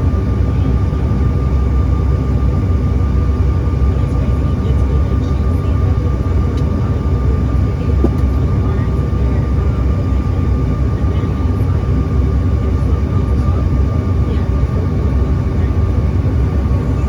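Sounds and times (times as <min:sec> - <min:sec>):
engine and airflow rumble: 0:00.0 - 0:17.0
steady high whine: 0:16.3 - 0:17.0.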